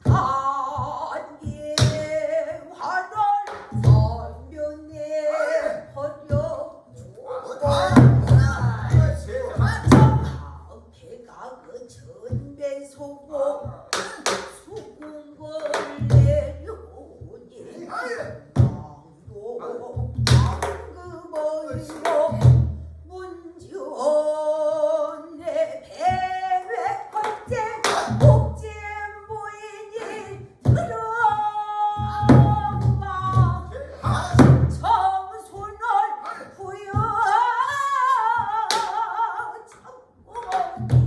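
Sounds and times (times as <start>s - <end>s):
person singing wavering phrases: 0.0s - 22.5s, 23.1s - 41.0s
barrel drum booms and knocks: 7.7s - 10.6s, 32.2s - 35.0s.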